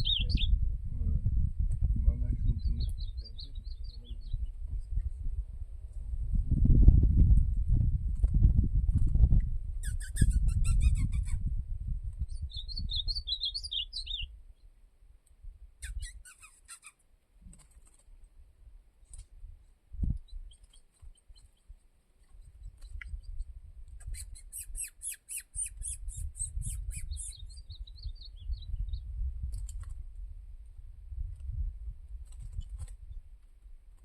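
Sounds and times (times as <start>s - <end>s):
bird chirping: 0.0s - 0.6s, 2.4s - 5.0s, 9.8s - 11.4s, 12.2s - 14.7s, 15.8s - 17.0s, 20.2s - 29.1s
wind rumble on microphone: 0.0s - 14.7s, 15.4s - 16.2s, 18.2s - 34.0s.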